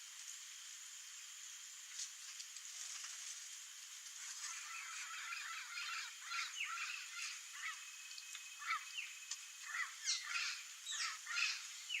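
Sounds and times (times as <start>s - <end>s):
parrots squawking: 9.6s - 11.6s.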